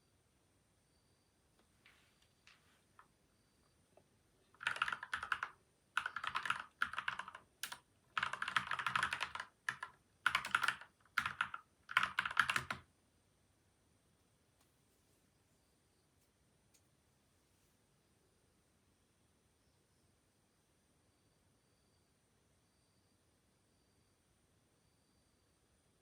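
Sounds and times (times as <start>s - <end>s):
mechanical keyboard typing: 4.6s - 12.9s.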